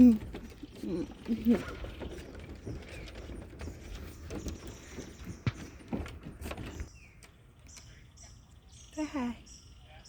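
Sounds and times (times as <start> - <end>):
footsteps on bridge: 0.0 - 7.9.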